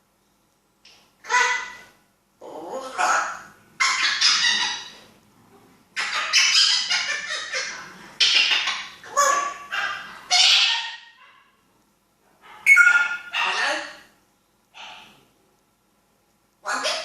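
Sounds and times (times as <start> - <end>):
parrot squawking: 1.2 - 5.0, 6.0 - 11.5, 12.4 - 14.1, 16.6 - 17.0.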